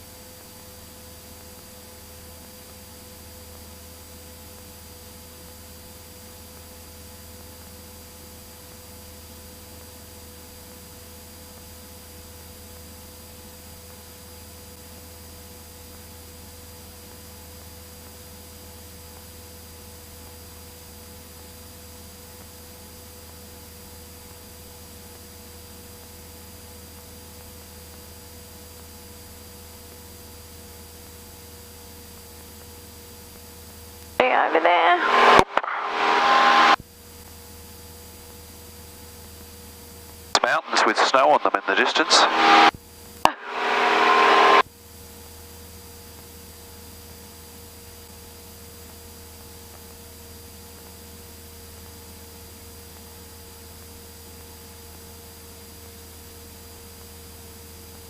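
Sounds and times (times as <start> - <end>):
airplane engine and propeller drone: 0.0 - 58.0
electrical hum: 33.7 - 36.8, 40.3 - 44.6
cockpit sound: 40.4 - 42.7
headset hiss: 40.4 - 42.7
thin steady whining tones: 43.3 - 44.6.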